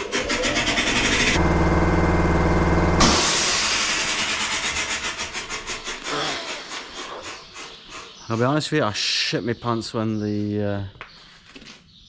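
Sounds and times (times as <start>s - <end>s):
air compressor humming: 0.0s - 6.5s.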